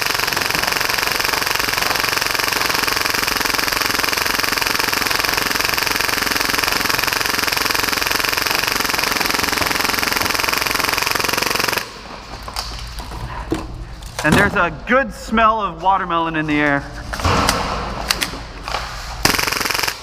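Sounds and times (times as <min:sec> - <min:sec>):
airsoft pistol rapid firing: 0:00.0 - 0:12.0, 0:19.2 - 0:20.0.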